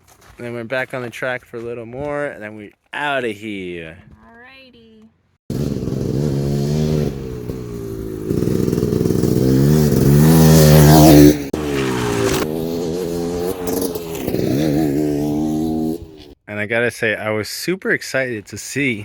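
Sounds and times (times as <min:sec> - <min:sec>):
dirt bike engine revving: 0:05.5 - 0:16.4.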